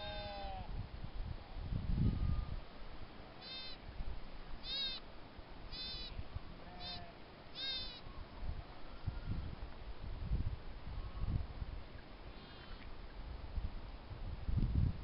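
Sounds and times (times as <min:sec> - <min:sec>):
short high-pitched animal calls: 0:00.0 - 0:00.7, 0:03.4 - 0:03.8, 0:04.6 - 0:05.0, 0:05.7 - 0:08.1, 0:12.3 - 0:12.9.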